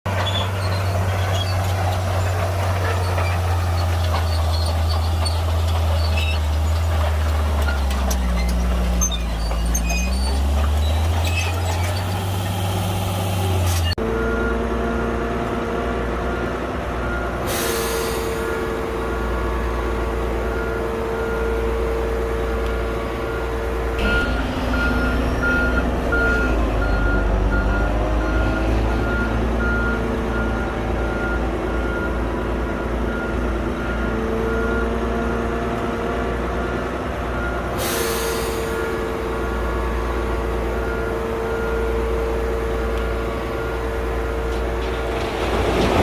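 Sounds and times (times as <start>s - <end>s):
diesel engine running under load: 0.1s - 46.0s
reversing alarm beeping: 16.4s - 35.4s, 36.7s - 44.6s.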